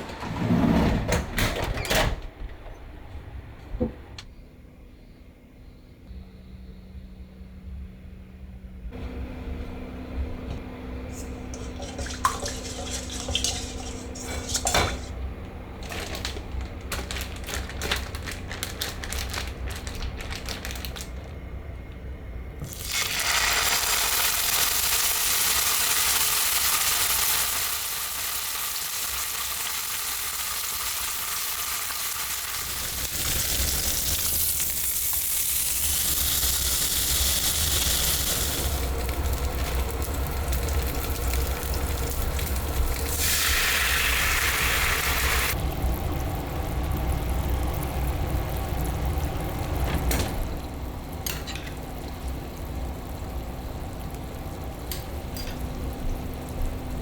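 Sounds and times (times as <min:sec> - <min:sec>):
utensils clinking against dishes: 0:11.2 - 0:15.2, 0:51.2 - 0:51.8, 0:54.9 - 0:55.7
food sizzling in hot pan: 0:22.7 - 0:49.7.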